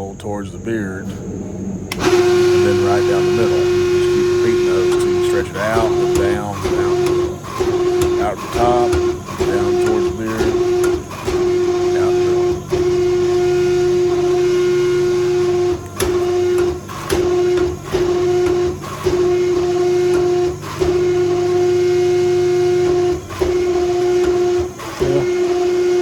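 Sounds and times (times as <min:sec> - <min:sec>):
hydraulic press whine: 0:00.0 - 0:26.0.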